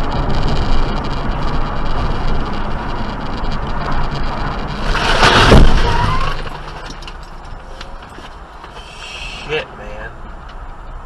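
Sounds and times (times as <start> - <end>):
vehicle road and engine noise: 0.0 - 11.0
loud short burst of noise: 4.7 - 6.8.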